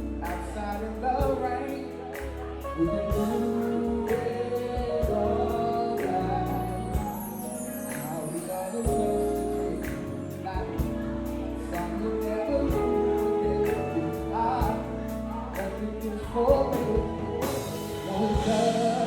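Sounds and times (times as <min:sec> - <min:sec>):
keyboard chords: 0:00.0 - 0:19.0
person singing: 0:00.0 - 0:19.0.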